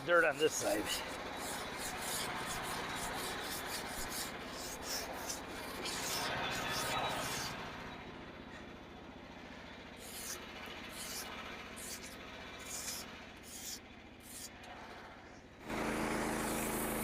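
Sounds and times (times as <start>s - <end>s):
small gas engine humming: 0.0s - 17.0s
saw blade hissing bursts: 0.2s - 7.6s, 10.0s - 14.9s, 16.1s - 17.0s.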